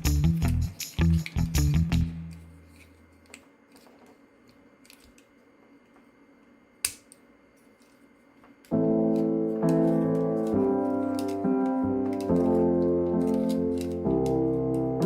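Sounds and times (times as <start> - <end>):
background music: 8.7 - 15.0
plastic toy parts clicking: 11.0 - 14.9.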